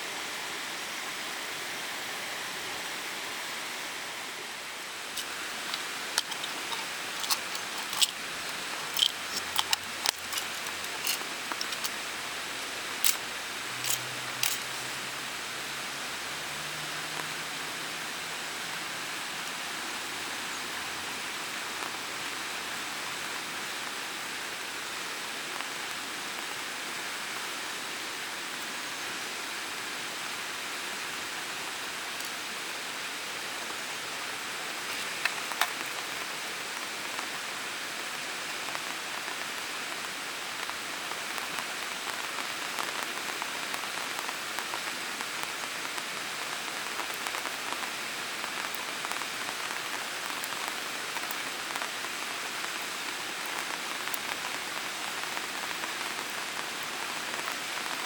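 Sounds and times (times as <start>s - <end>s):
rain pattering: 4.5s - 58.0s
sharp clicks: 13.0s - 13.2s, 13.8s - 14.7s.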